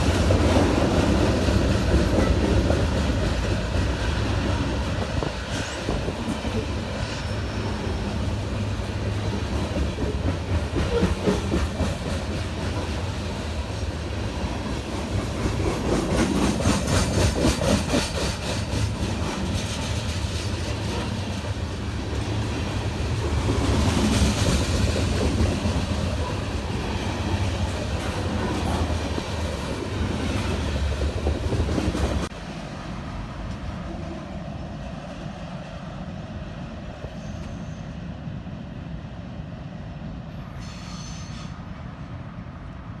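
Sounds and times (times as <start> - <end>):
train rumbling past: 0.0 - 43.0
train wheels clicking over rail joints: 8.3 - 14.0, 14.6 - 32.3.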